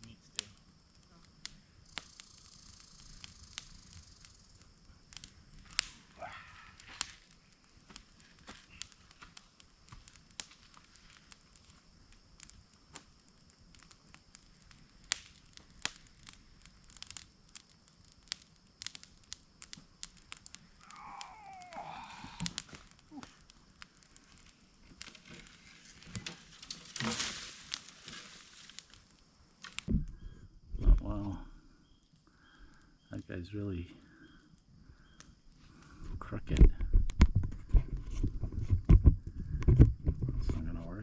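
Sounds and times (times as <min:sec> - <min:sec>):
twigs snapping and crackling: 0:01.3 - 0:30.2
branches cracking underfoot: 0:05.1 - 0:30.0.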